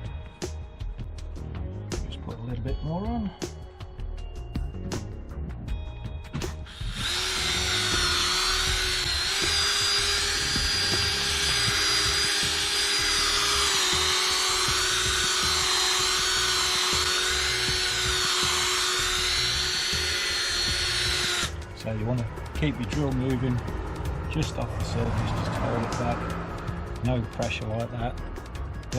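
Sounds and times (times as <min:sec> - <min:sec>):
electric drill polishing whine: 0:06.7 - 0:21.6.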